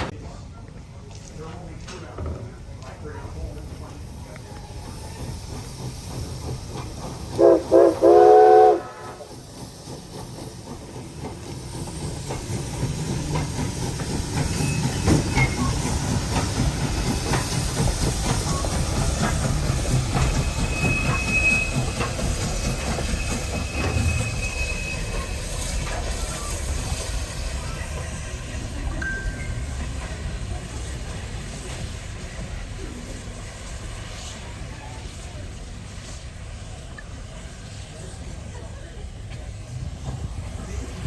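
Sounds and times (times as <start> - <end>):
train rumble and rail clicks: 0.0 - 41.0
steam locomotive chime whistle: 7.4 - 9.2, 20.2 - 25.5.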